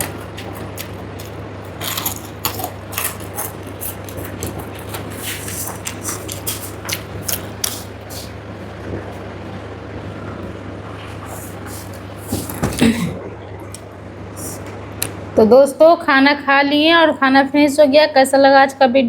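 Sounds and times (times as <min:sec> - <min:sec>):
chewing and mouth clicks: 0:00.0 - 0:08.4
steady low hum: 0:00.0 - 0:19.0
throat sound: 0:12.4 - 0:13.3.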